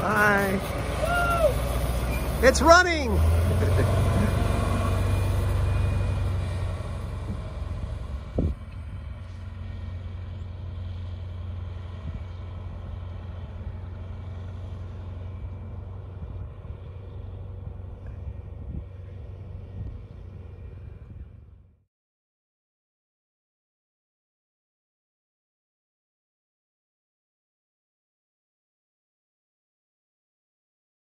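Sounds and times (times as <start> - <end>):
diesel engine idling: 0.0 - 21.6.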